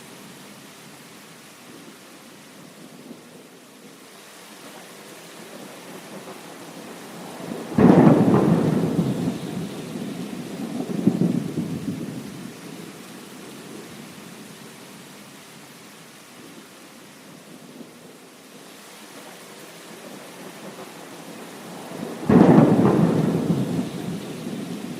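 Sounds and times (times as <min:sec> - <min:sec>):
steady rain: 0:00.0 - 0:24.9
thunderclap rumbling: 0:07.2 - 0:12.5, 0:21.8 - 0:24.9.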